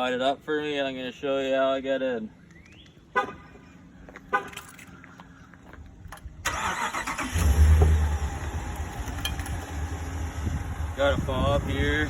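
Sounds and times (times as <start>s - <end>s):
truck engine starting and idling: 6.0s - 12.0s.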